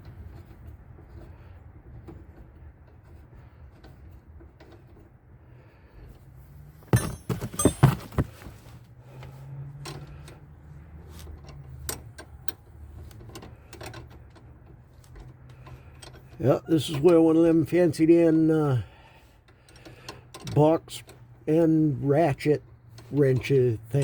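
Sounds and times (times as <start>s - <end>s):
hand tools clanking on metal: 6.9s - 8.5s, 13.1s - 17.5s.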